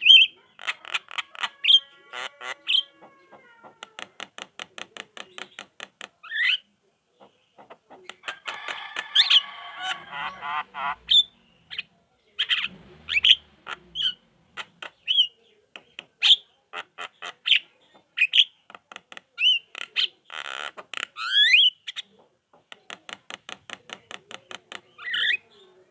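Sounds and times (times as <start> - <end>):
myna chattering: 7.2 - 25.5.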